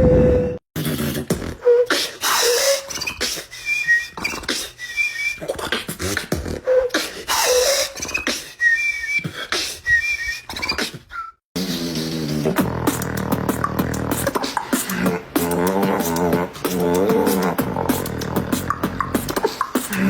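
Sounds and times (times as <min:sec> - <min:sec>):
person beatboxing: 0:00.8 - 0:08.6, 0:09.2 - 0:20.0
short whistled notes: 0:01.6 - 0:05.6, 0:06.7 - 0:12.3.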